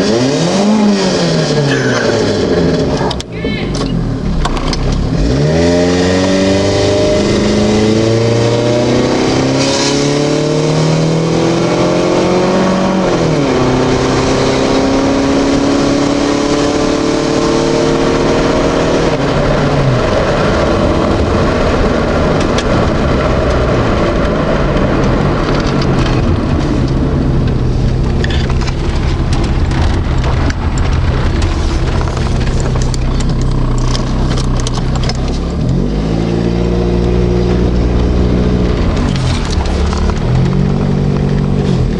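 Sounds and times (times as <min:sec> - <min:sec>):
car engine revving and idling: 0:00.0 - 0:41.9.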